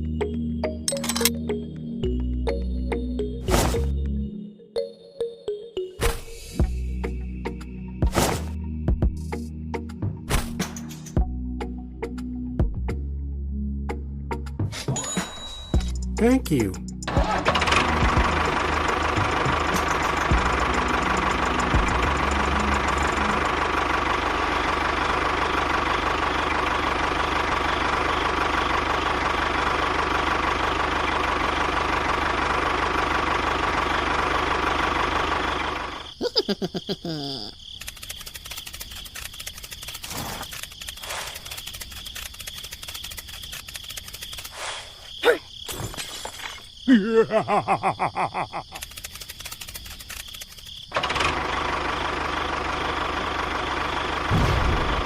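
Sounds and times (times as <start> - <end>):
toy vehicle engine running: 17.1 - 36.2, 37.4 - 44.8, 48.3 - 54.2.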